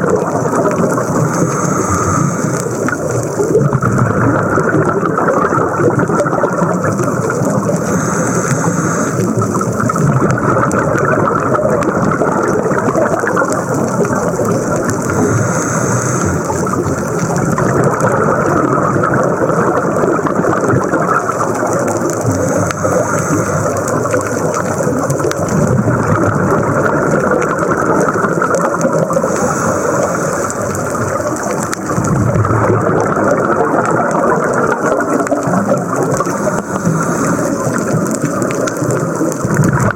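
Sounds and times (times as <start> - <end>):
exhaled bubbles bursting: 0.0 - 39.9
diver breathing through regulator: 0.6 - 3.4, 6.5 - 10.0, 14.4 - 17.4, 21.5 - 25.3, 28.7 - 32.4, 35.3 - 38.9.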